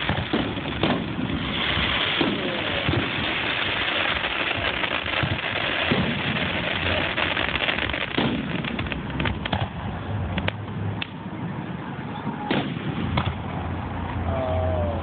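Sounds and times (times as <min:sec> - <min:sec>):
deep firework booms: 0:00.0 - 0:09.9
firework bursts and crackling: 0:00.0 - 0:11.4, 0:12.4 - 0:14.0.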